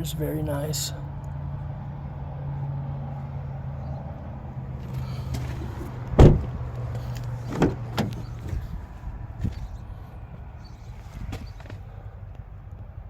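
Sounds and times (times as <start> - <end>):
car door slamming: 4.8 - 8.8.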